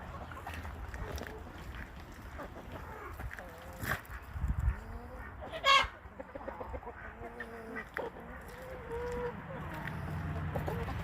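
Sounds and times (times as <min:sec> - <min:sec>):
hens clucking softly: 0:00.0 - 0:11.0
loud hen call: 0:05.2 - 0:07.9.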